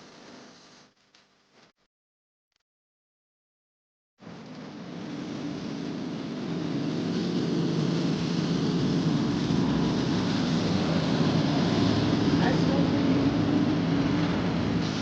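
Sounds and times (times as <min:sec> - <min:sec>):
jet cabin engine drone: 0:04.2 - 0:15.0.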